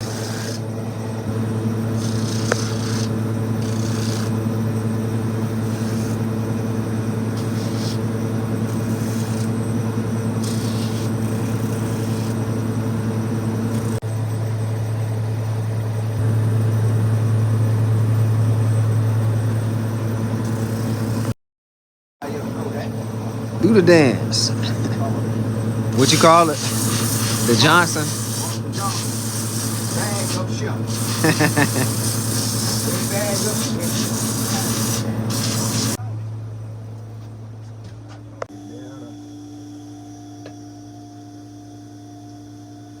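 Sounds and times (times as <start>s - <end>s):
machine motor humming: 0.0s - 21.3s, 22.6s - 36.0s
short high hisses: 26.0s - 36.0s.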